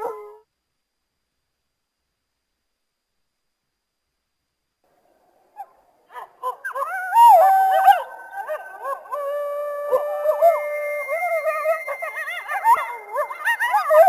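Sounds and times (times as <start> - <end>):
coyotes yipping and howling: 5.6 - 14.0.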